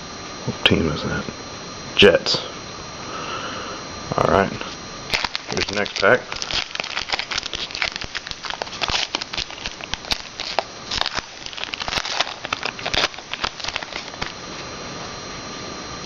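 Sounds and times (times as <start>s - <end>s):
card wrapper crinkling and tearing: 5.1s - 14.4s.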